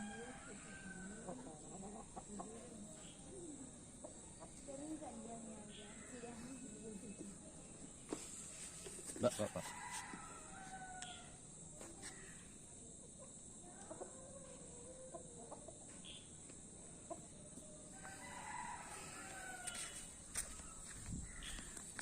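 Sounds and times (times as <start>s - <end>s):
rooster crowing: 0.0s - 1.4s, 9.3s - 11.4s, 17.9s - 21.6s.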